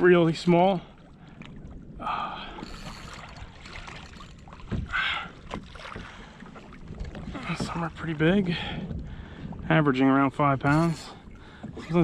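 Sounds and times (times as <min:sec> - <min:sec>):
water splashing around kayak: 0:00.0 - 0:12.0.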